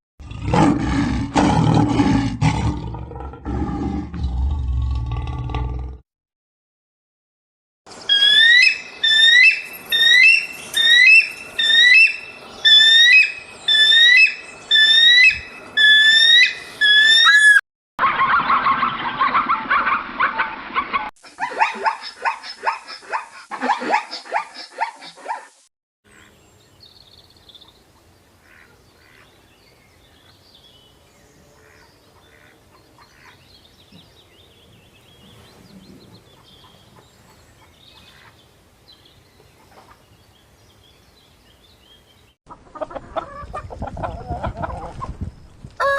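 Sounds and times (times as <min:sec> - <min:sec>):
sharp animal calls: 0:08.1 - 0:20.6.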